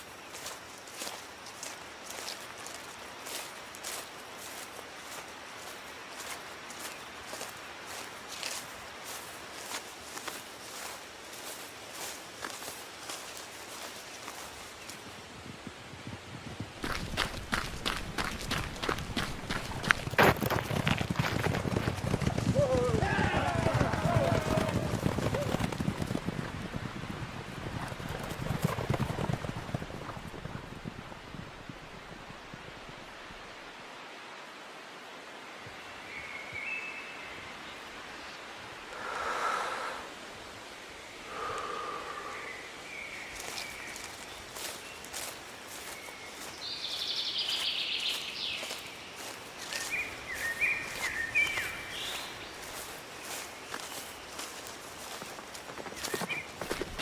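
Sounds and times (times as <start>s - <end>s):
horse hooves clip-clopping: 0.0s - 32.1s, 47.6s - 57.0s.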